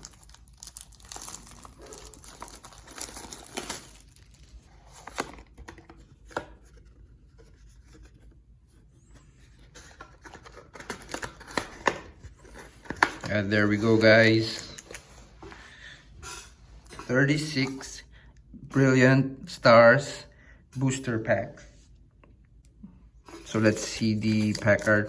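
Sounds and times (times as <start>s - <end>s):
plastic wrap tearing and crinkling: 0.0s - 5.3s.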